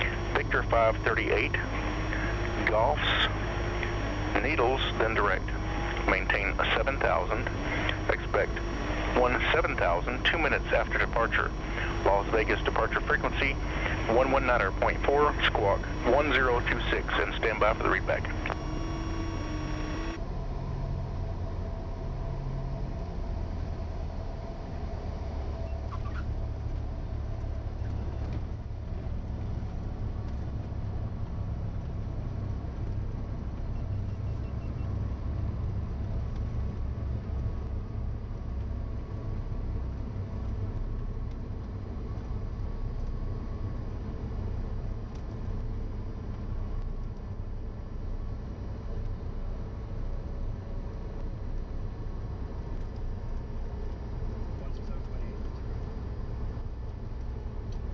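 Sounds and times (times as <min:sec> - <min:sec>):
radio hiss: 0:00.0 - 0:20.2
airplane engine and propeller drone: 0:00.0 - 0:57.9.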